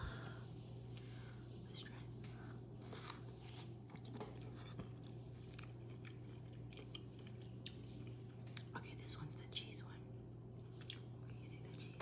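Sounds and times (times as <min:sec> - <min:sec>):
steady low hum: 0:00.0 - 0:12.0
mouth chewing wet smacks: 0:10.7 - 0:11.8.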